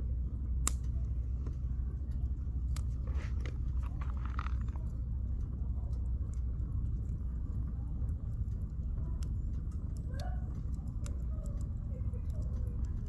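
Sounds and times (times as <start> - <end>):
low fire rumble: 0.0 - 13.0
campfire crackling and popping: 0.4 - 13.0.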